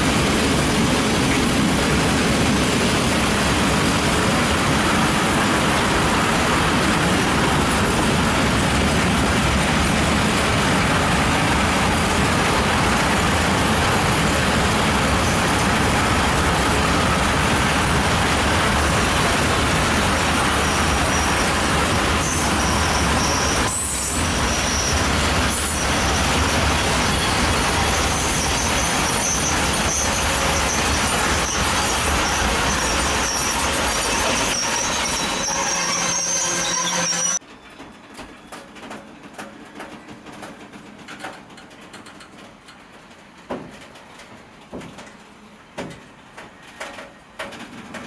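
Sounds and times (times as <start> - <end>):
freight train wheels rumbling: 0.0 - 48.0
high-pitched squeals: 20.3 - 37.4.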